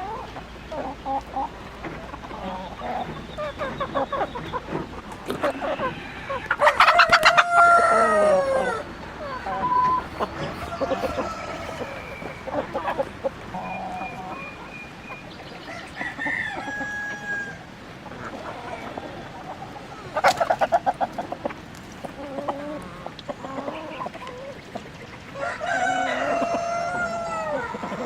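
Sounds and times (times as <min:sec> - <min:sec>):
chickens clucking: 0:00.0 - 0:28.0
rapid chicken cackle: 0:00.0 - 0:28.0
rooster crowing: 0:05.5 - 0:08.9, 0:10.4 - 0:12.6, 0:15.7 - 0:17.7, 0:25.4 - 0:28.0.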